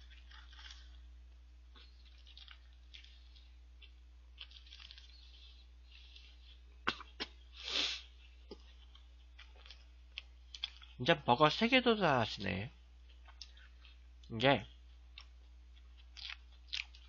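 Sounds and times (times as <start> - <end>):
man chewing: 0.0 - 11.0, 12.9 - 17.0
breathy puff: 7.5 - 8.1
lip smacks: 13.1 - 14.3.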